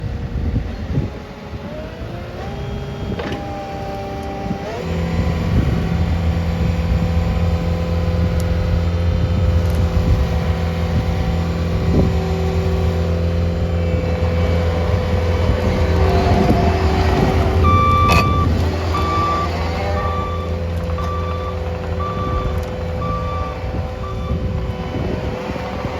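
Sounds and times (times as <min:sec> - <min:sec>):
diesel engine high-rpm drone: 0:00.0 - 0:25.9
reversing alarm beeping: 0:17.6 - 0:25.0.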